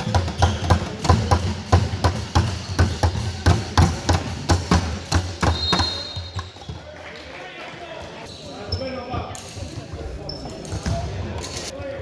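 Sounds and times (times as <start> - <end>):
basketball bouncing on court floor: 0.0 - 6.8.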